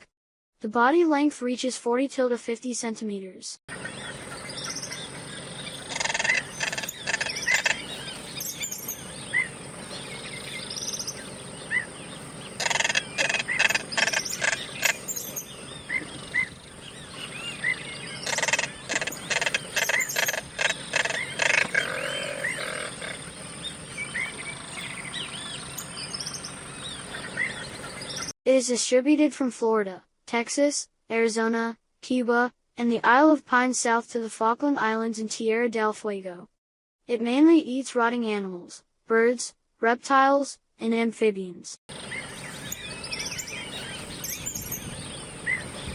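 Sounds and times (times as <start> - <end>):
small birds chirping: 3.7 - 28.3, 41.9 - 45.9
rapid rattling strokes: 12.6 - 15.4.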